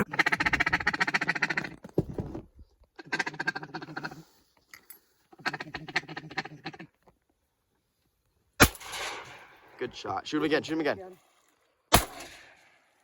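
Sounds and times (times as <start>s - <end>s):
ducks quacking: 0.0s - 1.9s, 5.3s - 6.9s.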